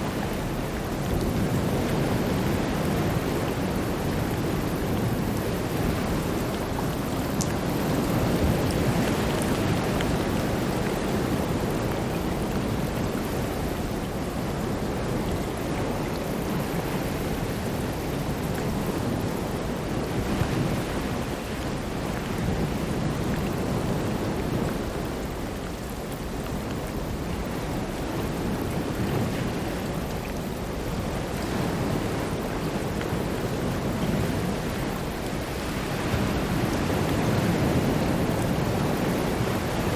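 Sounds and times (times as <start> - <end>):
ocean surf breaking waves: 31.4 - 39.9.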